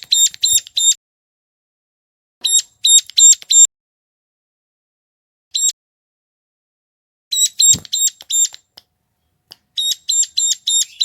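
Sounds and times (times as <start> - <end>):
bird calling shrill notes: 2.4 - 3.7, 5.5 - 5.8, 7.3 - 8.6, 9.8 - 11.0.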